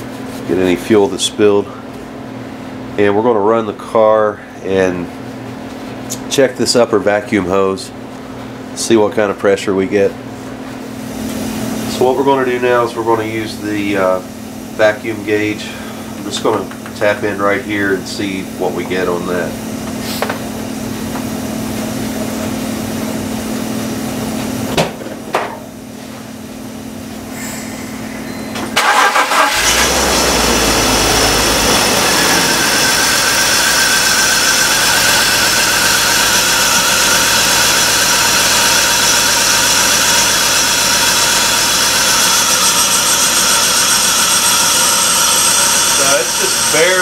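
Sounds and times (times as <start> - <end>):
steady hum: 0.0 - 47.0
car engine starting and idling: 28.7 - 46.8.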